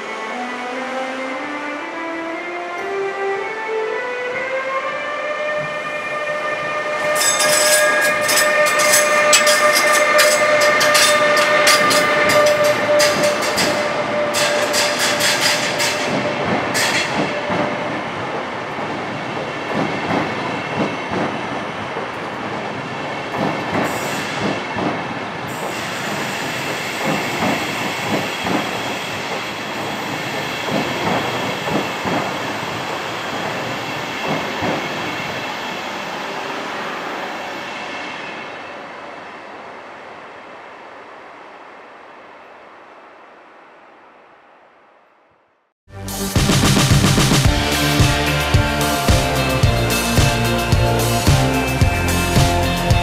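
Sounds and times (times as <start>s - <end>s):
electric locomotive whine: 0.0s - 45.7s, 47.1s - 53.0s
rumble and clatter of train wheels: 6.6s - 40.5s, 46.4s - 53.0s
sharp clicks from train wheels: 7.1s - 35.5s.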